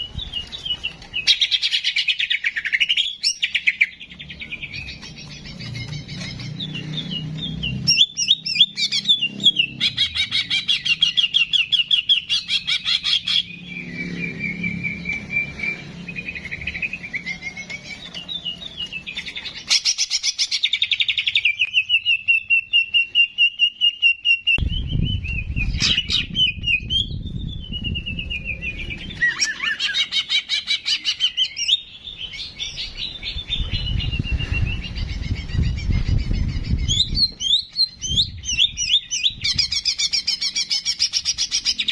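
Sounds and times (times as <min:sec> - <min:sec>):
bird singing trills and whistles: 0:00.0 - 0:41.9
low rumble: 0:24.6 - 0:29.2.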